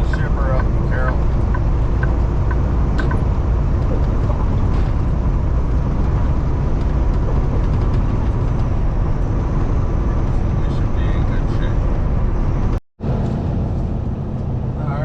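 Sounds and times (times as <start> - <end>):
truck engine and road noise: 0.0 - 15.0.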